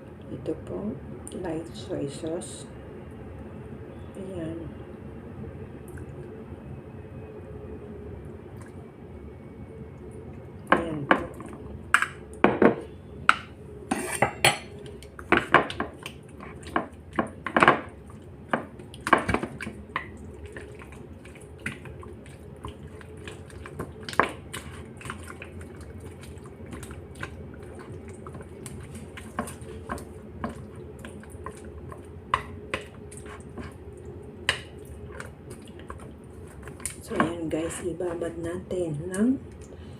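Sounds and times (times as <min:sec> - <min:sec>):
utensil clinking against a dish: 0:12.0 - 0:15.9.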